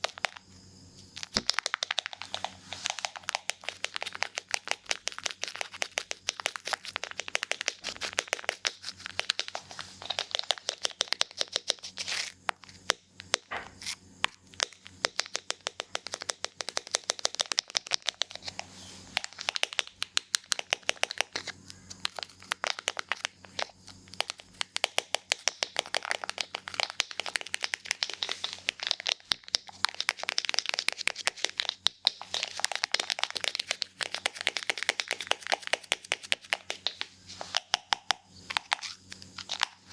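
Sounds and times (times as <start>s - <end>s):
scissors snipping hair: 14.6s - 39.9s.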